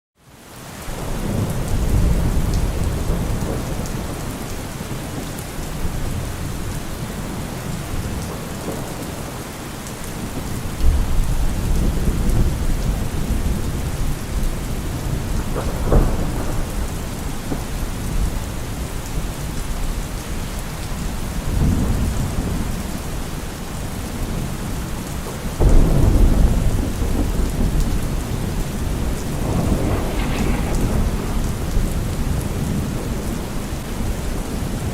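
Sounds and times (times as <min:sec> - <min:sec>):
steady rain falling: 0:00.2 - 0:34.9
rolling thunder rumbles: 0:25.5 - 0:34.9
sharp thunder crack: 0:25.6 - 0:33.2.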